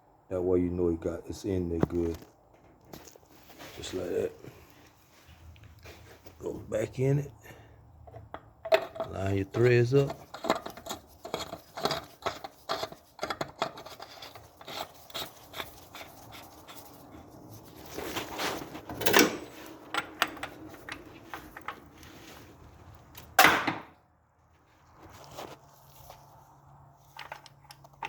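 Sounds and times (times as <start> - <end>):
plastic cap scraping and clicking: 8.1 - 17.2.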